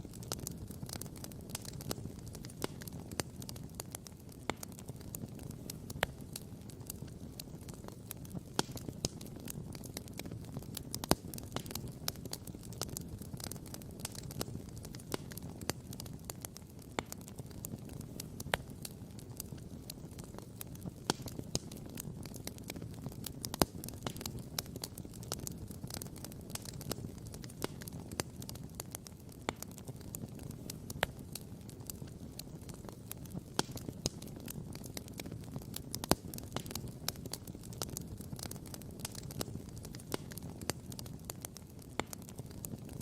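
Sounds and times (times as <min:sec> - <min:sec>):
campfire crackling and popping: 0:00.0 - 0:43.0.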